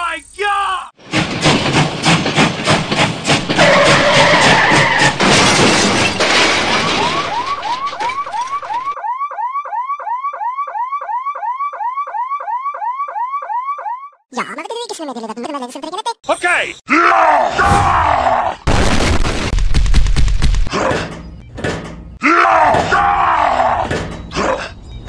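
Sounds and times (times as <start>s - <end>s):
wailing siren: 6.8s - 14.3s.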